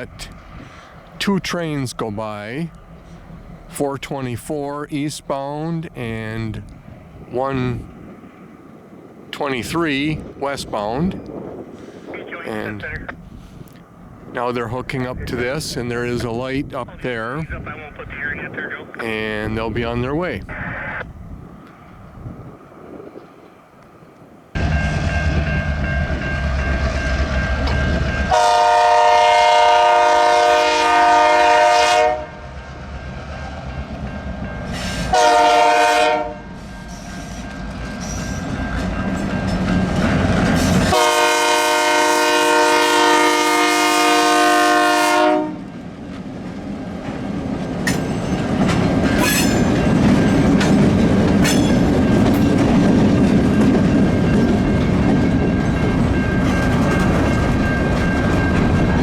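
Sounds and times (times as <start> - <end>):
diesel locomotive engines working: 0.0 - 59.0
multi-note locomotive horn: 28.3 - 32.6, 35.0 - 36.6, 40.8 - 45.8.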